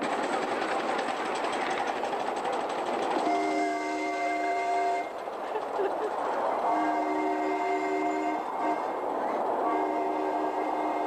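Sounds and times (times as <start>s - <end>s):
miniature train rumbling clatter: 0.0s - 11.0s
train whistle chord: 3.2s - 5.1s, 6.7s - 11.0s.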